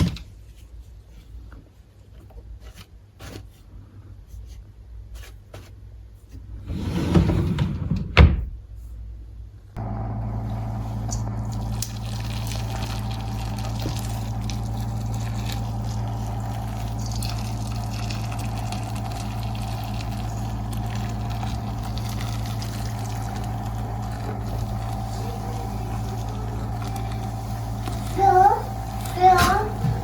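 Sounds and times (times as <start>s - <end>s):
low mechanical hum: 0.0s - 30.0s
water running: 10.3s - 30.0s.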